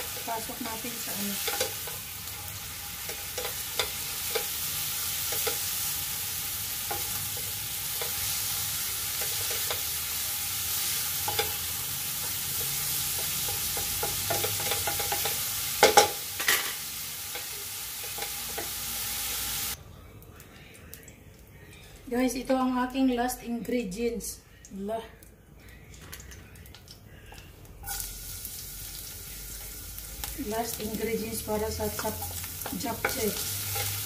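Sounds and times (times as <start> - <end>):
bean sprouts sizzling in oil: 0.0 - 19.8, 27.8 - 34.0.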